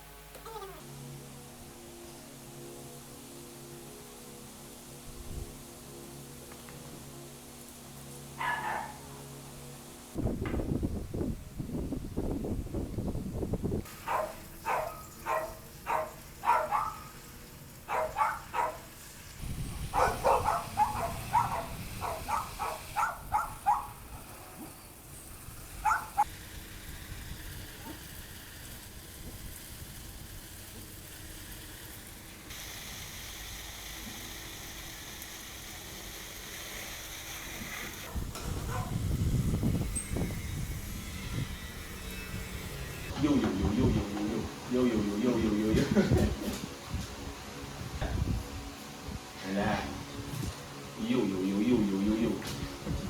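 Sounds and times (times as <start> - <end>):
dog barking: 8.4 - 9.2, 14.0 - 17.2, 17.9 - 18.9, 19.9 - 24.0, 25.8 - 26.2, 38.6 - 39.0.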